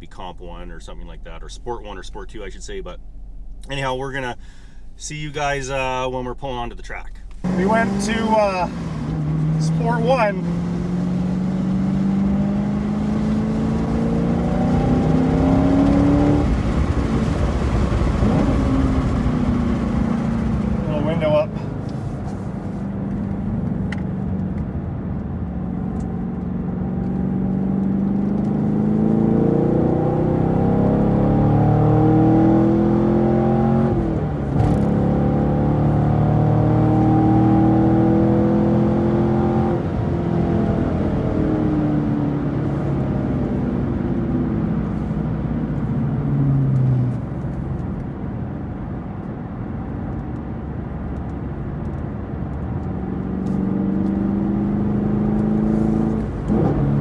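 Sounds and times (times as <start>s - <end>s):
car engine accelerating: 7.4s - 57.0s.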